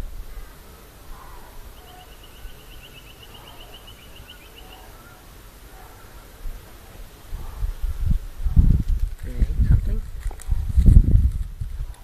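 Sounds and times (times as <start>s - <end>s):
bird trilling: 1.1s - 6.1s.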